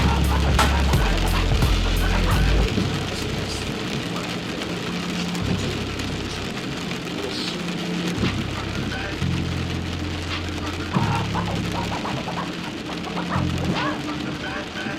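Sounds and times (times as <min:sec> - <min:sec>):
low muffled bass tones: 0:00.0 - 0:04.0, 0:05.4 - 0:06.9, 0:08.1 - 0:12.2, 0:13.4 - 0:13.8
rain on a car roof: 0:00.0 - 0:14.9.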